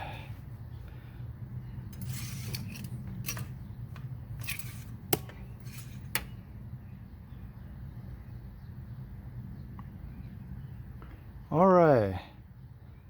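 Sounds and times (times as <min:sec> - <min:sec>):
dipstick scraping and clicking: 0:01.9 - 0:06.4.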